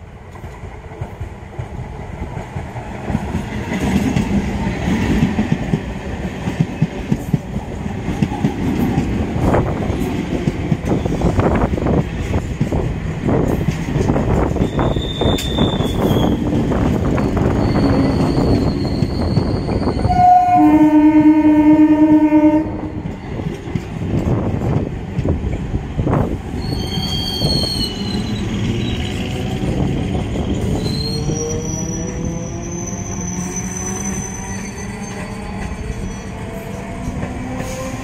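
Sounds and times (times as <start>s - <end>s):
train wheels rumbling on rails: 0.0s - 38.0s
high wheel squeals: 14.6s - 20.7s, 26.6s - 29.4s, 30.3s - 36.8s
train horn: 17.7s - 18.6s, 20.0s - 23.1s.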